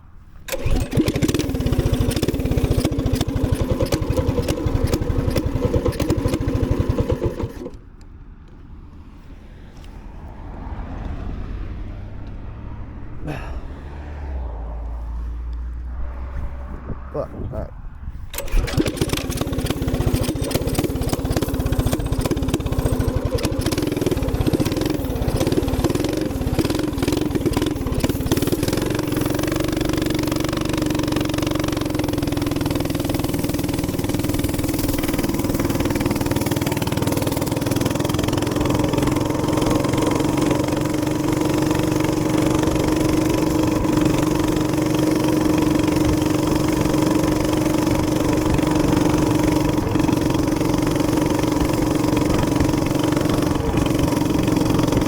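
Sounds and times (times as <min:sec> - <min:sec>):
knocking and buffeting: 0:00.4 - 0:11.2, 0:14.4 - 0:55.0
small engine running: 0:00.5 - 0:07.8, 0:13.3 - 0:13.6, 0:16.3 - 0:55.0.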